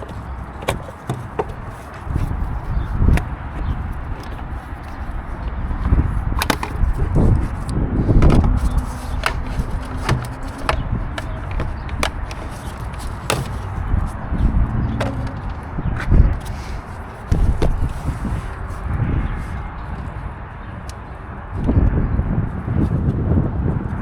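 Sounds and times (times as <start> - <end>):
low rumbling handling noise: 0.0 - 23.2
tools clicking and knocking: 5.8 - 7.0, 8.2 - 13.8, 14.9 - 15.7.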